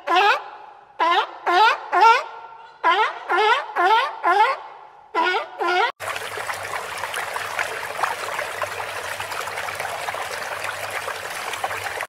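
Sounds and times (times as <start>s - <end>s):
fish splashing: 6.0s - 12.0s
water splashing and trickling: 6.0s - 12.0s.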